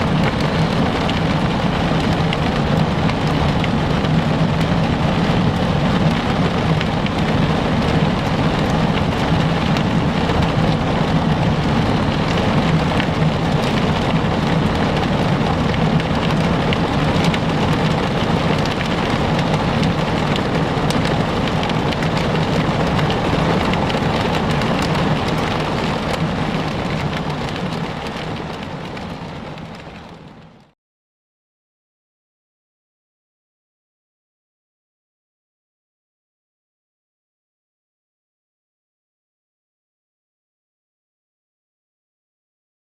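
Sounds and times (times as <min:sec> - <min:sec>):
heavy rain pelting down: 0:00.0 - 0:30.8.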